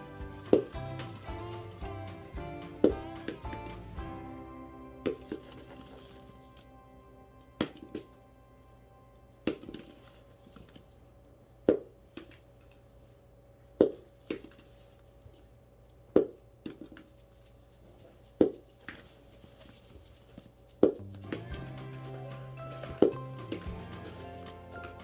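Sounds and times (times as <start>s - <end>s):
rubber ball bouncing: 0.3s - 4.1s, 5.0s - 6.0s, 7.6s - 8.1s, 9.5s - 10.1s, 11.6s - 12.4s, 13.8s - 14.7s, 16.1s - 17.1s, 18.3s - 19.2s, 20.8s - 21.8s, 22.7s - 25.0s.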